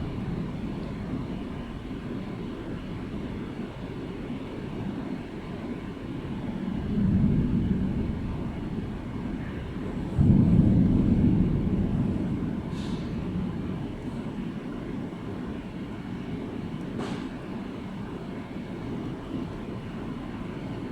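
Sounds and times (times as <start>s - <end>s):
thunder rumbling: 0.0s - 3.7s, 6.1s - 16.5s
loud thunder peal: 6.7s - 14.1s.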